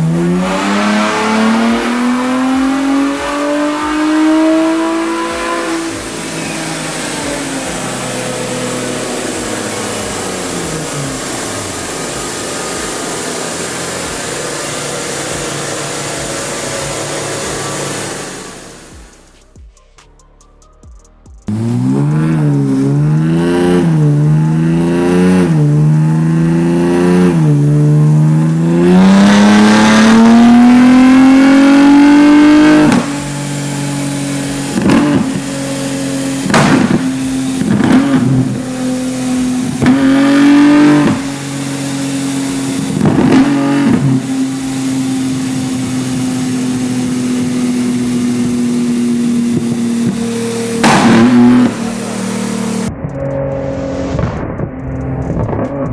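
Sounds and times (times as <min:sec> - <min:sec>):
car engine accelerating hard: 0:00.0 - 0:19.6, 0:21.4 - 0:55.9
loud exhaust pops and bangs: 0:28.3 - 0:55.9.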